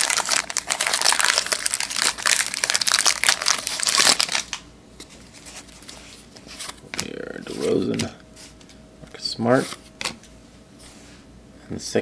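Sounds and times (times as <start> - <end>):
plastic wrapper crinkling: 0.0 - 4.6.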